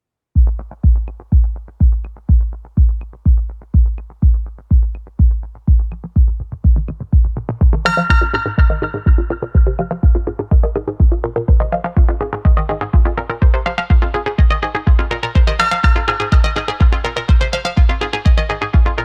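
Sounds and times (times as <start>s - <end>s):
drum machine kick: 0.4s - 19.0s
sustained synth: 7.8s - 17.7s.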